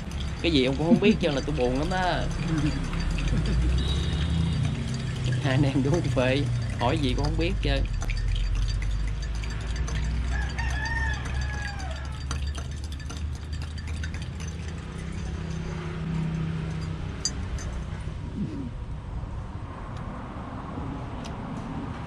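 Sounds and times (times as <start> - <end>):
rooster crowing: 10.2 - 12.2.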